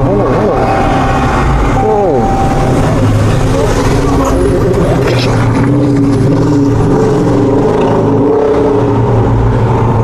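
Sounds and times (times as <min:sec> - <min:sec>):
car engine running: 0:00.0 - 0:10.0.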